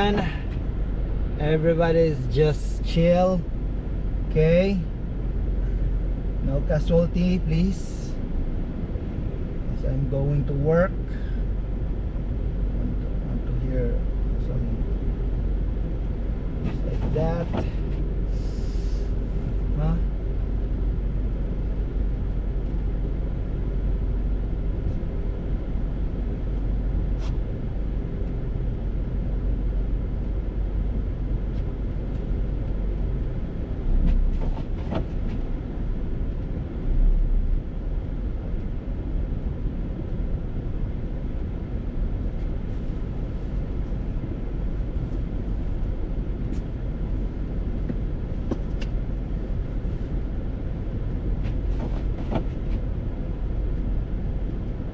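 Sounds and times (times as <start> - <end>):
vehicle engine and road noise: 0.0 - 54.9
vehicle bumps: 33.9 - 35.6, 51.4 - 52.9.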